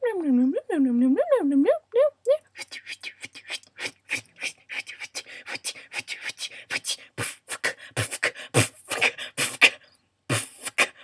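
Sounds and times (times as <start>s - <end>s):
person beatboxing: 2.5s - 11.0s.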